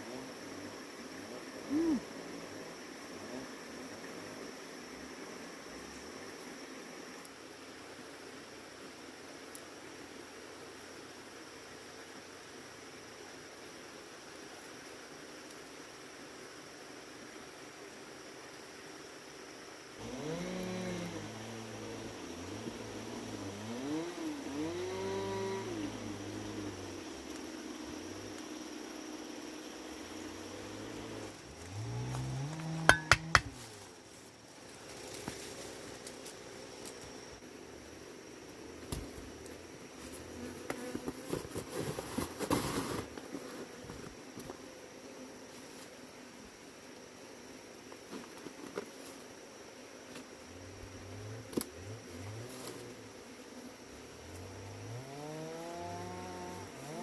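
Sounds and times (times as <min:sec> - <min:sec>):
small engine running: 0:20.0 - 0:26.8, 0:54.3 - 0:57.0
bees buzzing: 0:20.0 - 0:34.0, 0:49.2 - 0:57.0
rustling: 0:33.4 - 0:37.2, 0:38.9 - 0:44.2.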